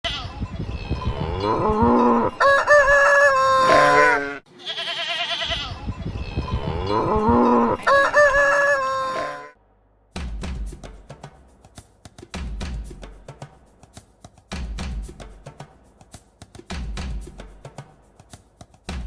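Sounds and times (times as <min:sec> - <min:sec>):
farmyard fowl calls: 0:01.2 - 0:05.7, 0:07.0 - 0:09.6
rooster crowing: 0:02.2 - 0:04.4, 0:07.7 - 0:09.5.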